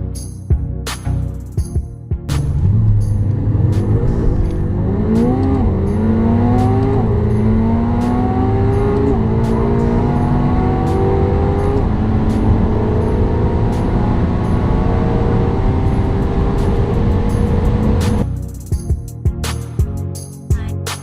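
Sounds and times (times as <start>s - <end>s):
sports car accelerating: 2.3s - 18.2s.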